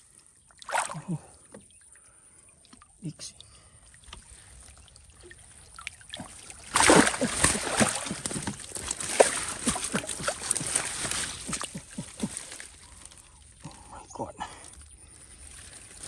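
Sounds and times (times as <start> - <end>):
splashing in shallow water: 0.4 - 2.0, 3.7 - 13.9.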